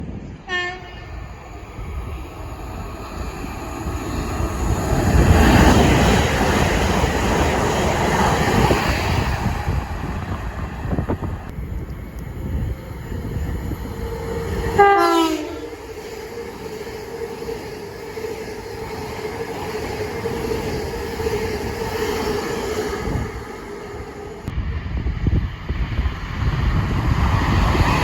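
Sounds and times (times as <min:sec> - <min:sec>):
train running noise: 0:00.0 - 0:28.0
train horn: 0:00.5 - 0:01.3, 0:14.7 - 0:15.8.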